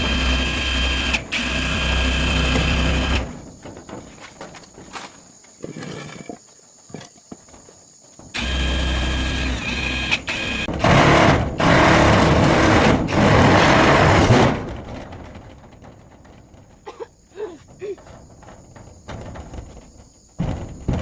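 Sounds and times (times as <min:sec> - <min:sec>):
power tool motor whine: 0:00.0 - 0:03.3, 0:08.4 - 0:14.2
rough grinding noise: 0:00.0 - 0:04.4, 0:08.2 - 0:17.0.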